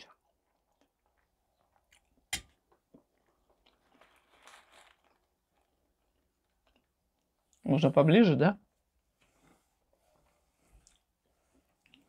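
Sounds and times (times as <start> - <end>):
faint chewing: 0.1 - 7.6, 10.7 - 12.0
soft rustle: 3.8 - 5.8, 9.0 - 12.0.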